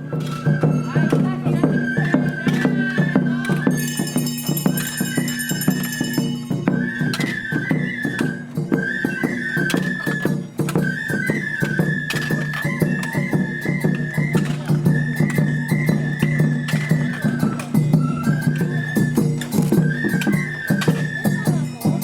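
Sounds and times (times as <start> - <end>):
bamboo flute melody: 0.0 - 22.0
fast drum beats: 0.0 - 22.0
ringing metallic strike: 3.7 - 6.6.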